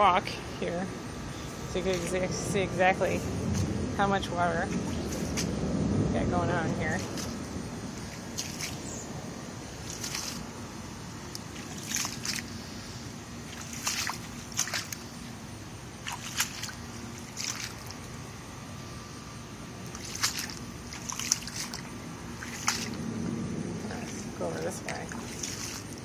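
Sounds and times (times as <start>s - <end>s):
footsteps splashing through water: 1.7s - 2.4s, 4.6s - 5.6s, 7.0s - 26.0s.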